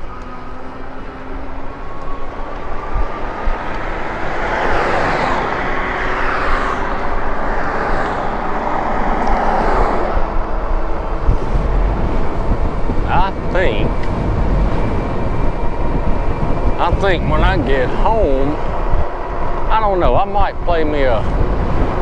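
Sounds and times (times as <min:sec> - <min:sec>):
passing vehicle: 0:00.0 - 0:22.0
road and wind noise: 0:00.0 - 0:22.0.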